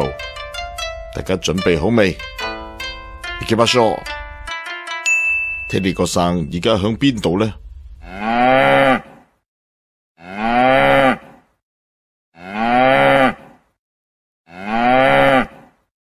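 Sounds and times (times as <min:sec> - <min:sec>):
cow mooing: 0:08.0 - 0:09.2, 0:10.2 - 0:11.4, 0:12.4 - 0:13.5, 0:14.5 - 0:15.6.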